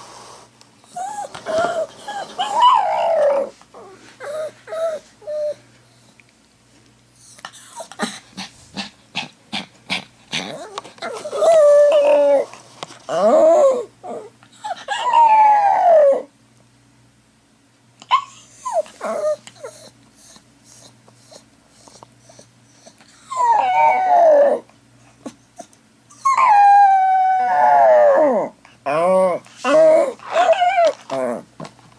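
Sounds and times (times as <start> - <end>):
dog whimpering: 0.8 - 5.6, 7.2 - 8.3, 10.3 - 12.5, 13.1 - 16.3, 18.1 - 31.5
dog howling: 0.9 - 5.6, 10.4 - 12.5, 13.1 - 16.3, 23.3 - 24.7, 26.2 - 31.4
dog yelping: 0.9 - 5.6, 10.3 - 12.5, 13.1 - 16.3, 18.1 - 21.4, 22.3 - 24.6, 26.1 - 31.4.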